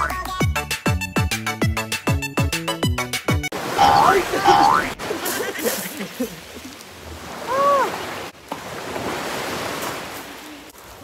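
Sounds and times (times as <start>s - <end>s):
waves splashing against rocks: 3.5s - 11.0s
person exclaiming: 3.8s - 5.0s, 7.4s - 8.0s.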